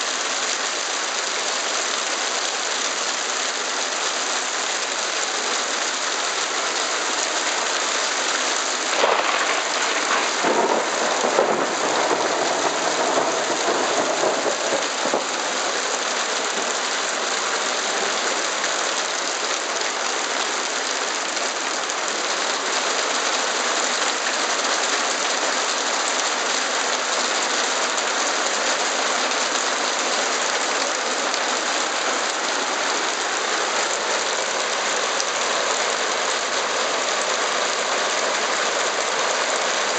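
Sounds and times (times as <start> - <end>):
heavy hail and rain pelting: 0.0 - 39.9.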